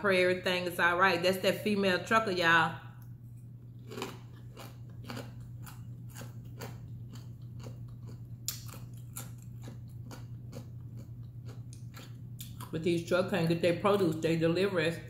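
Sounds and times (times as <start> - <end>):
steady low hum: 0.0 - 15.0
person chewing crunchy food: 3.7 - 12.7.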